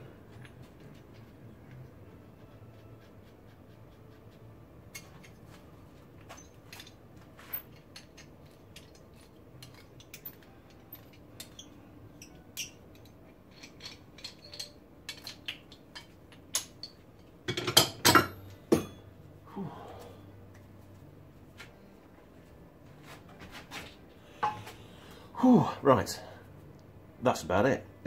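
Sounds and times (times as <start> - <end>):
metal parts clicking and clinking: 4.9 - 5.5, 6.2 - 19.0
clatter of metal pieces: 6.2 - 18.0.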